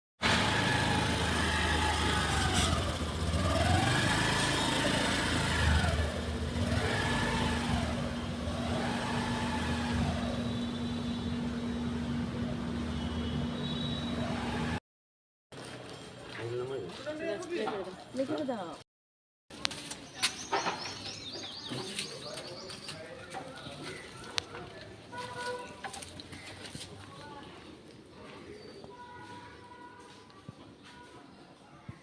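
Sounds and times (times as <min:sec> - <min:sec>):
car engine revving: 0:00.2 - 0:12.0.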